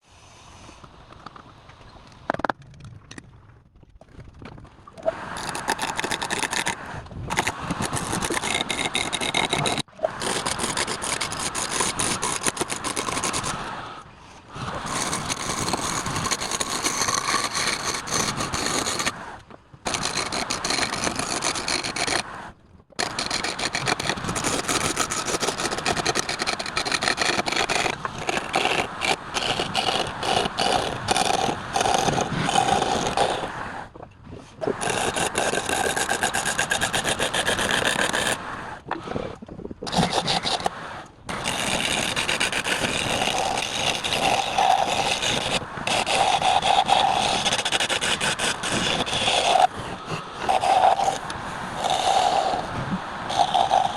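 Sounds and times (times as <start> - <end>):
lathe tool scraping wood: 5.4 - 13.6, 14.9 - 19.1, 19.9 - 22.2, 23.0 - 33.4, 34.8 - 38.4, 39.9 - 40.7, 41.3 - 52.7, 53.3 - 53.9.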